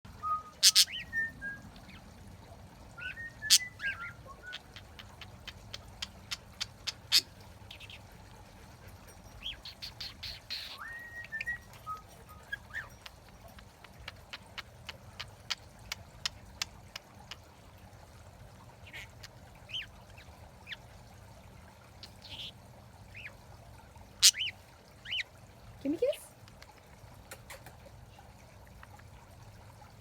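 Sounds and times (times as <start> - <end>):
birds whistling: 0.2 - 1.6, 3.0 - 5.0, 9.4 - 13.1
bird clicks and chirps: 3.4 - 8.0, 9.4 - 17.5, 26.4 - 27.9.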